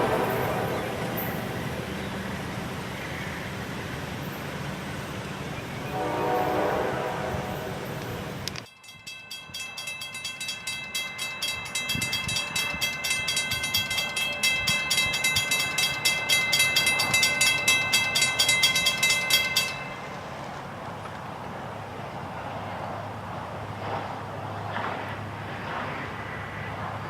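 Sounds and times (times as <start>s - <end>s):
railroad bell ringing: 0.0s - 2.1s, 7.5s - 20.5s.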